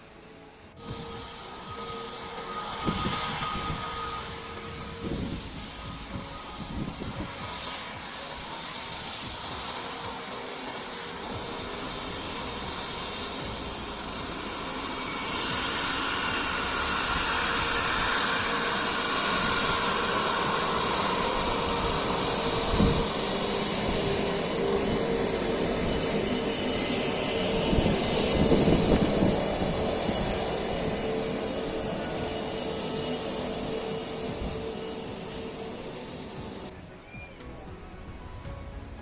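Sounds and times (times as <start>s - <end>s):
jet airliner engines passing: 0.0s - 39.0s.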